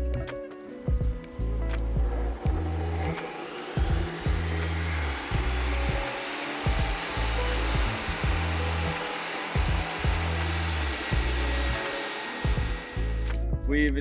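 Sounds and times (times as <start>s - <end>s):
music with deep bass: 0.0s - 14.0s
drum beat: 0.9s - 1.4s, 3.8s - 4.4s, 5.3s - 8.6s, 9.6s - 11.5s, 12.4s - 13.0s.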